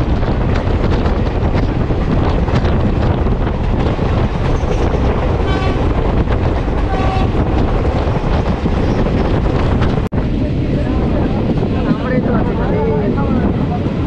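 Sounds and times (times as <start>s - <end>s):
train running at speed: 0.0s - 14.0s
train horn toots: 5.5s - 5.9s, 6.9s - 7.4s.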